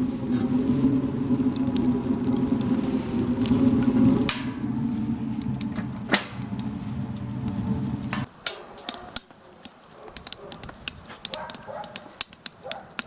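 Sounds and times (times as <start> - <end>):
steady low hum: 0.0 - 8.3
sharp pops of fire: 0.0 - 13.0
wood fire crackling: 0.0 - 13.0.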